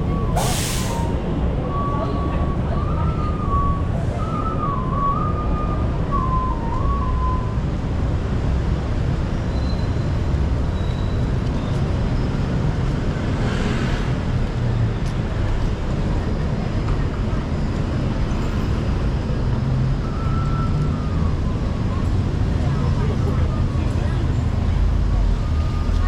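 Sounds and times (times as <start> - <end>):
traffic engines running: 0.0 - 26.0
brief hiss: 0.4 - 1.1.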